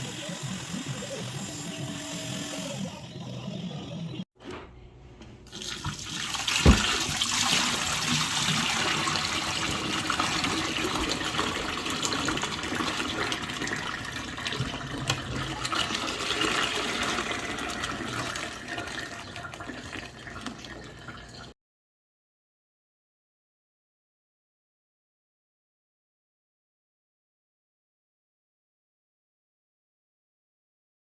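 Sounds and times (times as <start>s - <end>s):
knock: 6.6s - 6.9s.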